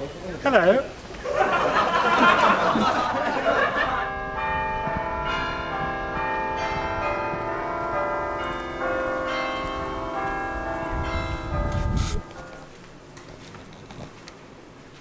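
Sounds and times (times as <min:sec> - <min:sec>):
church bells ringing: 0:01.5 - 0:13.1.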